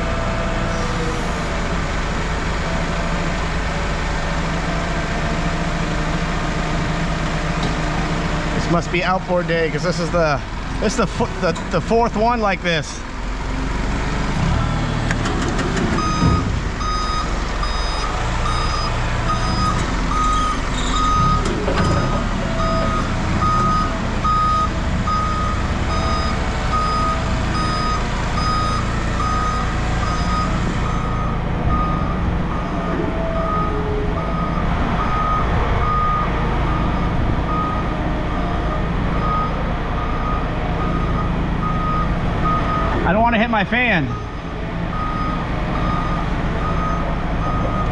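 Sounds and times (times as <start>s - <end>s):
diesel engine running: 0.0s - 47.9s
reversing alarm beeping: 16.0s - 38.0s, 38.6s - 43.2s, 44.0s - 47.9s.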